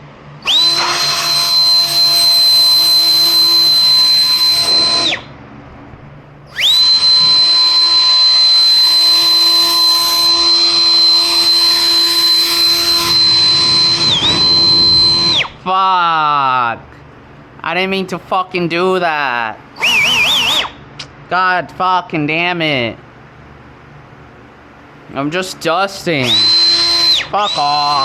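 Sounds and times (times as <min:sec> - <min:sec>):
power tool motor whining: 0:00.4 - 0:05.3, 0:06.5 - 0:15.6, 0:19.8 - 0:20.8, 0:26.2 - 0:28.0.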